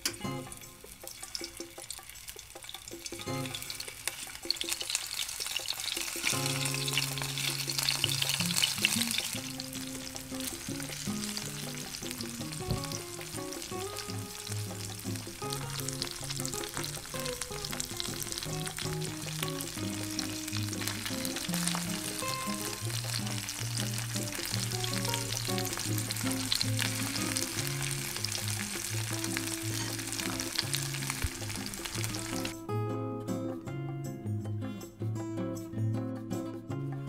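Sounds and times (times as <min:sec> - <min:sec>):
background music: 0:00.0 - 0:37.0
octopus sizzling in a pan: 0:00.4 - 0:32.6.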